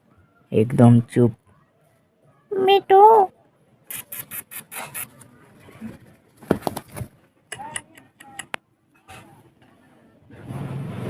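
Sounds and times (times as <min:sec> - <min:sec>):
parrot chattering and squeaking: 0:03.9 - 0:05.2.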